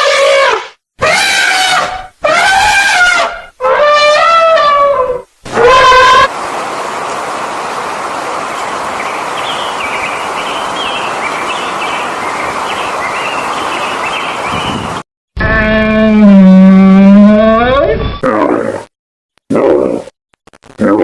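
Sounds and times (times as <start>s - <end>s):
outdoor background noise: 1.0s - 15.0s
small birds chirping: 6.8s - 15.0s.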